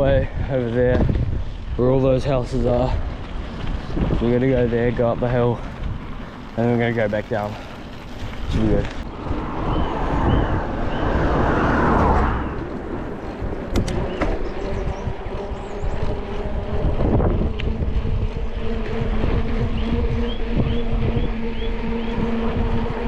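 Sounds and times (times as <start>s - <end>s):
wind rumbling on microphone: 0.0s - 23.0s
steady low hum: 7.6s - 23.0s.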